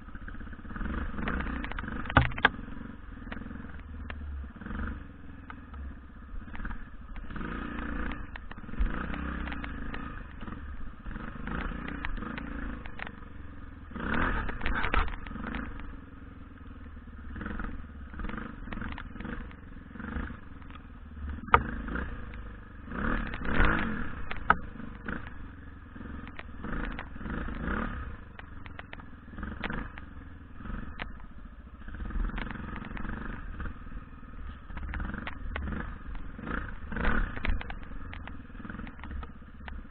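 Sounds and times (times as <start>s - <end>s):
motorcycle engine revving: 0.0s - 39.9s
sharp knocks and clatter: 0.8s - 2.6s, 11.4s - 13.3s, 14.0s - 15.9s, 17.5s - 25.4s, 26.2s - 30.1s, 31.9s - 33.8s, 34.4s - 39.9s.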